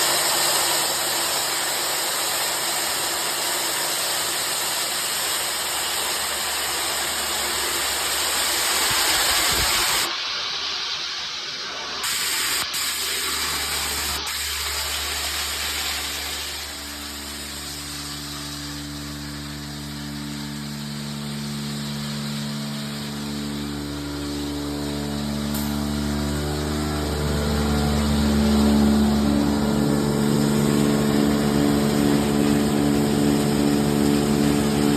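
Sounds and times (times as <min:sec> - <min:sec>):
vacuum sucking up gravel: 0:00.0 - 0:34.9
low machine hum: 0:13.2 - 0:34.9.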